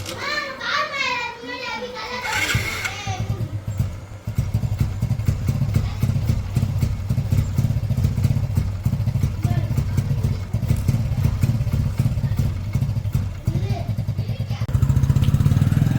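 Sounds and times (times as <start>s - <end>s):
motorcycle engine idling: 1.5s - 15.9s.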